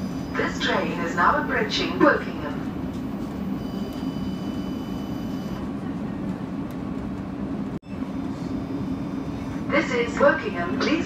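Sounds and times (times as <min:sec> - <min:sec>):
faint high whine: 0:03.1 - 0:05.6.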